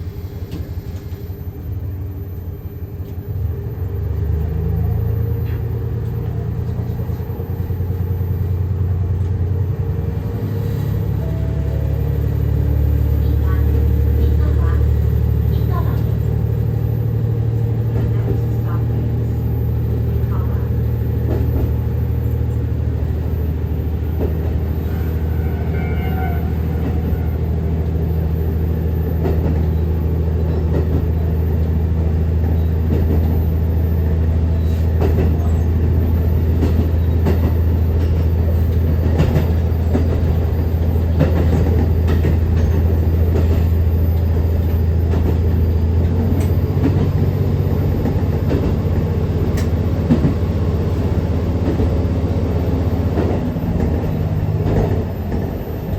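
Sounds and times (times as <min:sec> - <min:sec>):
diesel engine drone: 0:00.0 - 0:55.9
wheels clicking over rail joints: 0:34.6 - 0:55.7.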